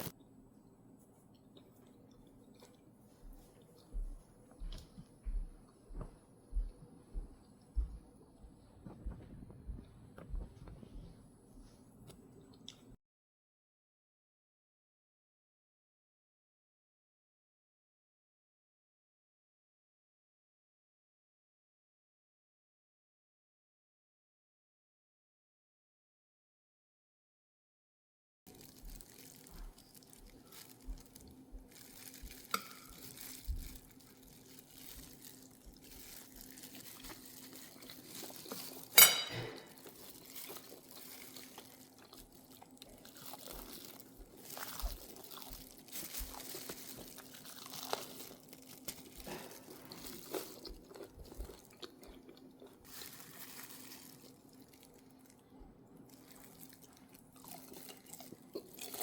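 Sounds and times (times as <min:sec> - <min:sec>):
kitchenware clicks and crunches: 0:28.5 - 0:52.0.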